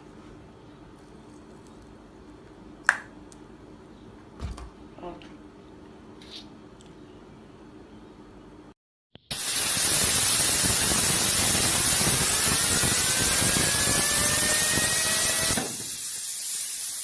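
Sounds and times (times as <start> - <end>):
loud rushing air hiss: 9.3 - 14.0.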